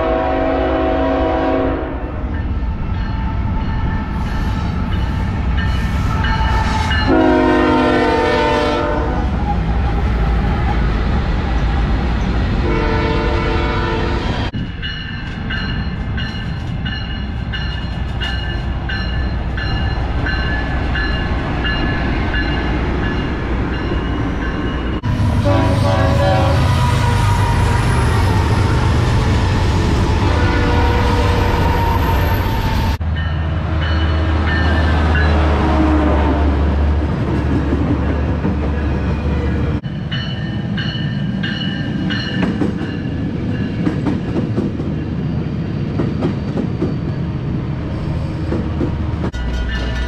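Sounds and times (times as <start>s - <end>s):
train horn blasts: 0.0s - 2.4s, 6.2s - 9.3s, 12.6s - 14.6s, 25.0s - 27.8s, 30.2s - 31.8s, 35.3s - 36.8s
diesel locomotives rumbling: 0.0s - 50.0s.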